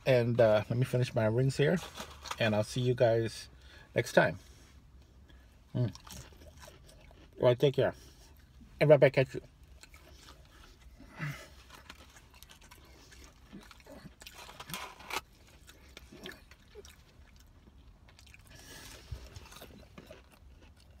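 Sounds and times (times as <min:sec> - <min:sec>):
chewing and crunching: 0:04.4 - 0:21.0.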